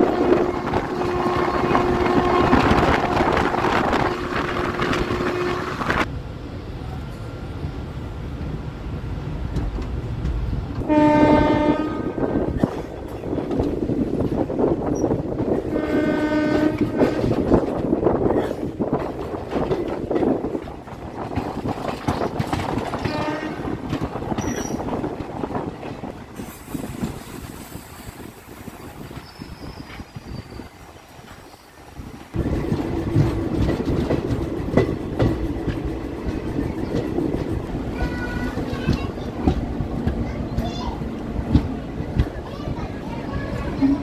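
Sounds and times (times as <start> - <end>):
locomotive horn blasts: 0.0 - 6.0, 10.8 - 12.4, 15.7 - 17.4, 23.0 - 23.7
train rumble and wheel clatter: 0.0 - 44.0.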